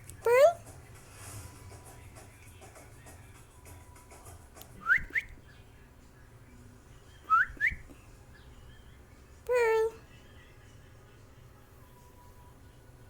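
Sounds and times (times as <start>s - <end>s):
cockatiel whistling: 4.8s - 5.4s, 7.2s - 8.0s.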